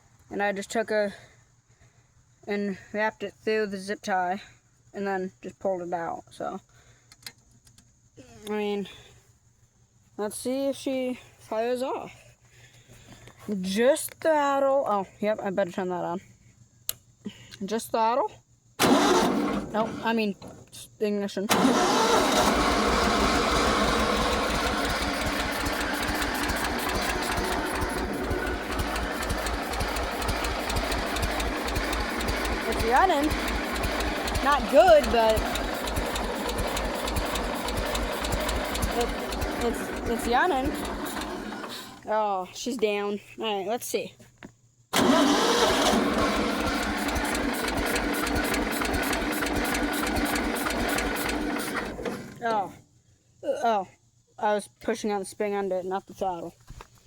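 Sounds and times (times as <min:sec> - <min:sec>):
lawnmower engine running poorly: 0:18.8 - 0:20.7, 0:21.5 - 0:42.1, 0:45.0 - 0:52.6.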